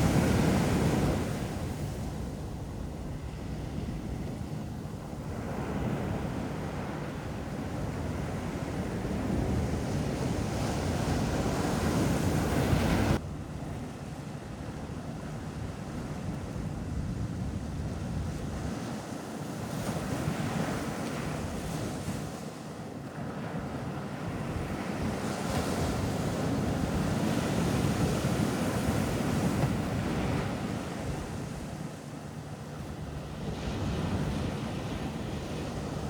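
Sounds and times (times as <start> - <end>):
ocean surf washing: 0.0 - 13.2
wind on microphone: 0.0 - 22.4.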